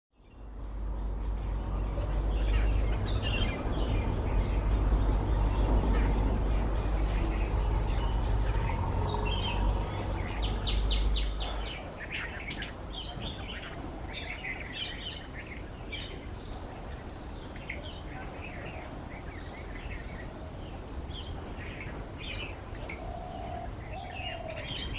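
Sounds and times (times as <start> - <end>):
bird chirping: 0.2 - 24.9
heavy low rumble: 0.4 - 14.2.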